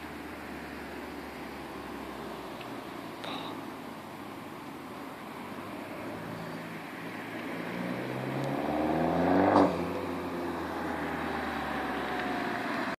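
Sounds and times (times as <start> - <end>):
car engine accelerating: 5.4 - 13.0.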